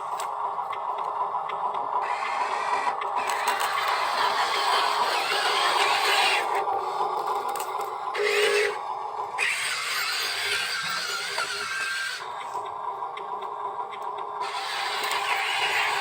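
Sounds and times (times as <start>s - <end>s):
small electric motors whirring: 2.0s - 12.8s, 14.4s - 16.0s.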